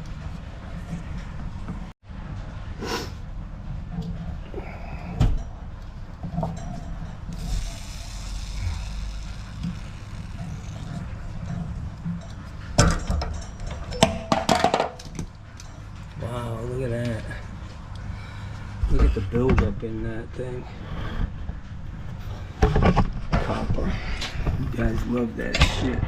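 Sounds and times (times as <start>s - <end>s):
steady low hum: 0.0s - 26.0s
hiss: 7.4s - 9.8s
knocks and clatters on pipework: 8.6s - 16.1s.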